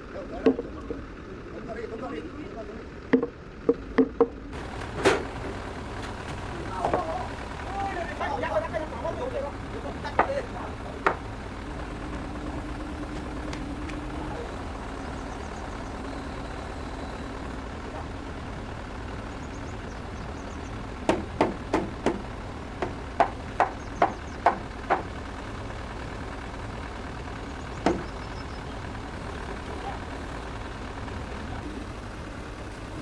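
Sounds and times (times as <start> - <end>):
engine idling: 0.0 - 33.0
knocks on timber frame: 10.1 - 11.2, 21.1 - 25.1, 27.8 - 28.2.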